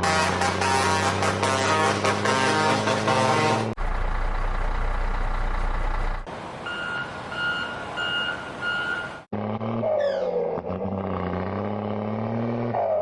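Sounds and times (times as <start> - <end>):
truck engine rumble: 0.0 - 13.0
truck reversing alarm beeping: 3.8 - 11.6.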